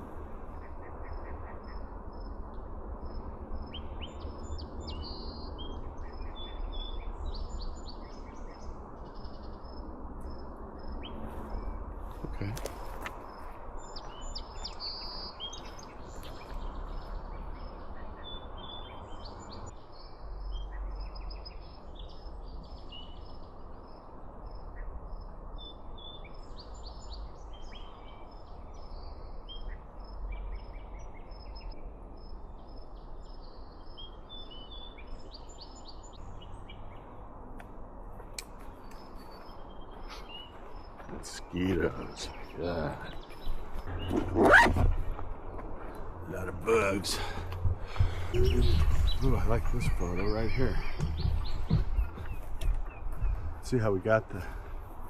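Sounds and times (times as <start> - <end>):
small birds chirping: 0.0 - 55.0
low outdoor rumble: 41.1 - 55.0.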